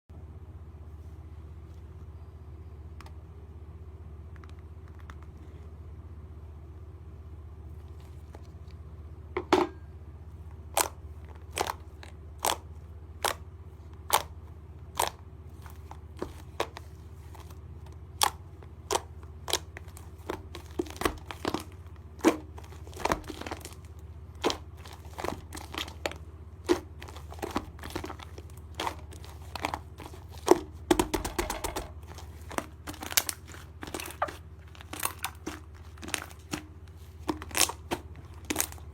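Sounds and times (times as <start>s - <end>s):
steady low hum: 0.1s - 38.9s
slime squeezed with crunchy pops: 24.4s - 38.9s.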